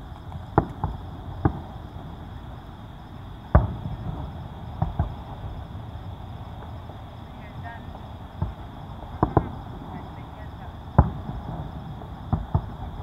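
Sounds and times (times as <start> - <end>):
firework shells bursting: 0.0 - 2.4, 7.4 - 13.0.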